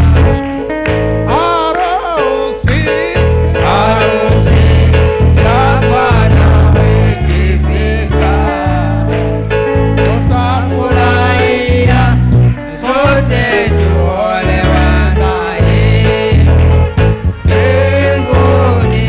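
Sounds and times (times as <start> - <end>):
heavy bass accompaniment: 0.0 - 1.5, 2.7 - 19.0
person singing gospel: 0.0 - 19.0.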